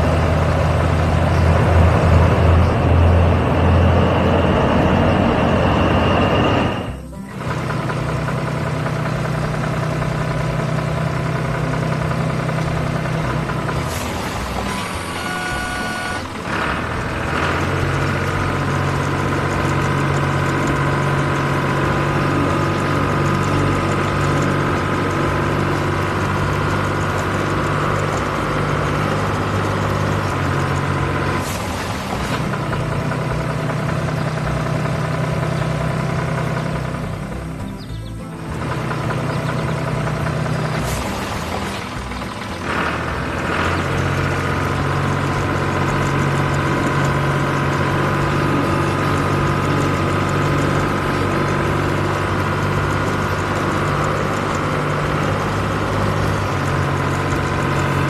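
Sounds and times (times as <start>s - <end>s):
truck engine running: 0.0s - 58.0s
short beeps: 14.7s - 16.3s.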